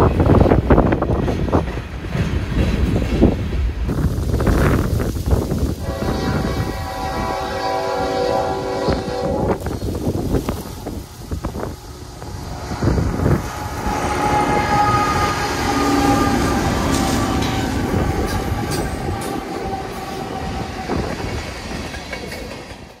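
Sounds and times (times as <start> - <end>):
diesel locomotives passing: 0.0 - 23.0
multi-note air horn: 5.8 - 9.6, 12.6 - 21.0.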